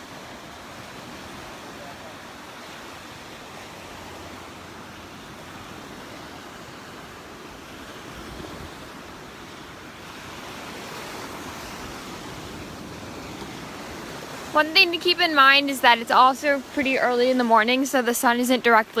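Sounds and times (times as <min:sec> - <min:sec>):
surf breaking on beach: 0:00.0 - 0:19.0
wind on microphone: 0:02.9 - 0:17.7.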